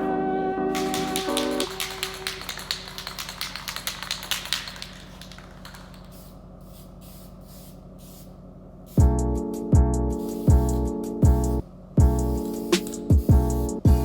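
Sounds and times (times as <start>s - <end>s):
spray paint can hissing bursts: 0.7s - 9.2s, 10.1s - 11.0s, 12.2s - 14.0s.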